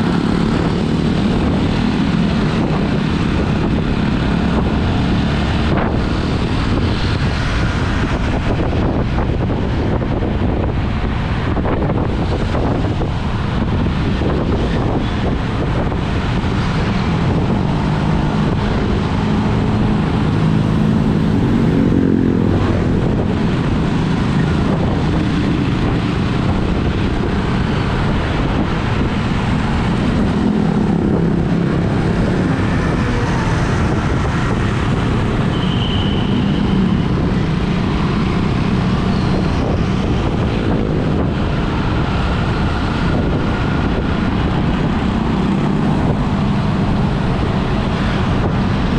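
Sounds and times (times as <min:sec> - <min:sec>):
road noise: 0:00.0 - 0:48.9.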